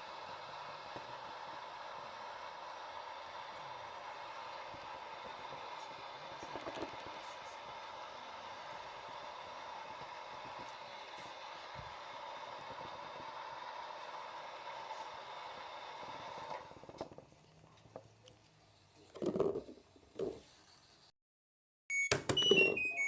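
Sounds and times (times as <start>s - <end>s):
washing machine spinning: 0.0s - 17.4s, 22.1s - 23.0s.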